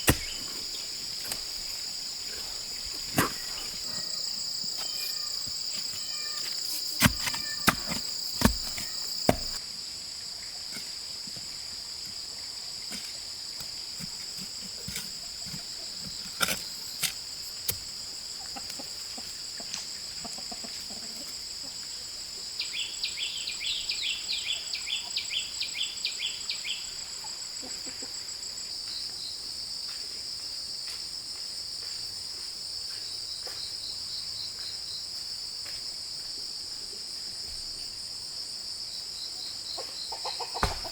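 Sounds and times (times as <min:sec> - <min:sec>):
high insect drone: 0:00.0 - 0:20.6.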